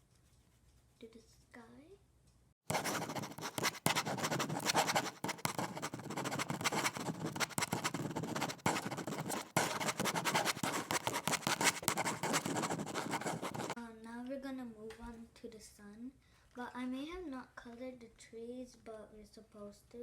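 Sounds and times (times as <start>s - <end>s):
pencil scratching on paper: 2.7s - 13.8s.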